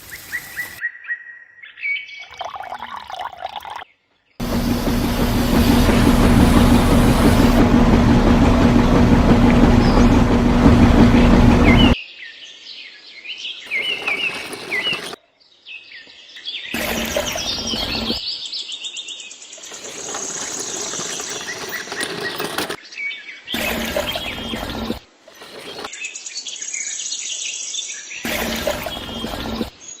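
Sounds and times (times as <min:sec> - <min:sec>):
machine humming: 0:04.4 - 0:12.0, 0:13.7 - 0:15.2, 0:16.8 - 0:18.2, 0:19.6 - 0:22.8, 0:23.6 - 0:25.9, 0:28.3 - 0:29.7
birds chirping: 0:09.3 - 0:12.0.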